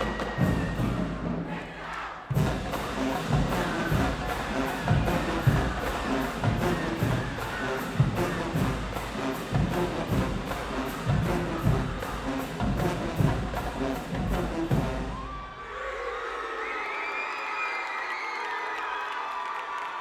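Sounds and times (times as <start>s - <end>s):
crowd cheering and whooping: 0.0s - 2.1s, 3.6s - 8.6s, 15.0s - 20.0s
drumline: 0.0s - 15.6s
marching band brass: 0.0s - 15.8s.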